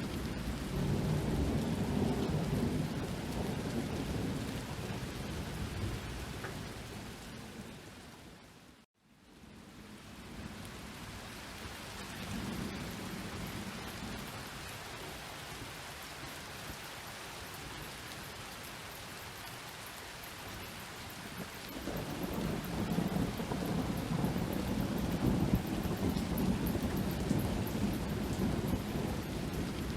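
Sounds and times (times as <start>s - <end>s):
thunder rumbling: 0.0s - 7.8s, 21.4s - 29.9s
steady rain: 0.0s - 29.9s.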